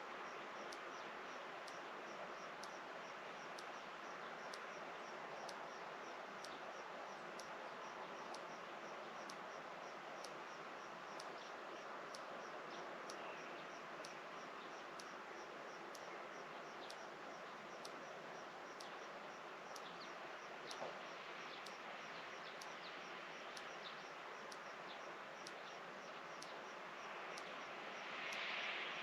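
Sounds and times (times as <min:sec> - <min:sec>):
steady soft hiss: 0:00.0 - 0:29.0
faint click: 0:19.7 - 0:29.0.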